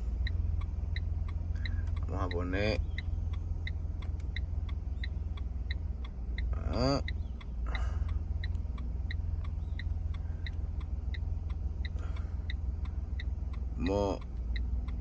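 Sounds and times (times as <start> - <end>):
car engine humming: 0.0 - 15.0
turn signal ticking: 0.0 - 15.0.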